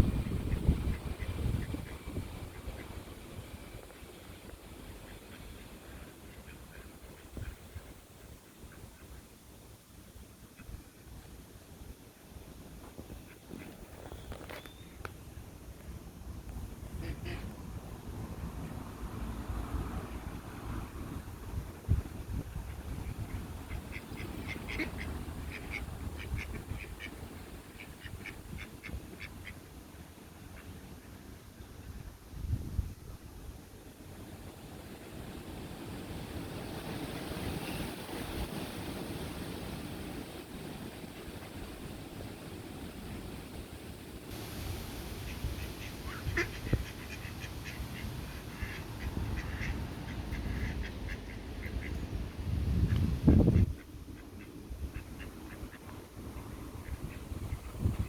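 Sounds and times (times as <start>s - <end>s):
ducks quacking: 23.3s - 27.2s, 45.6s - 52.0s.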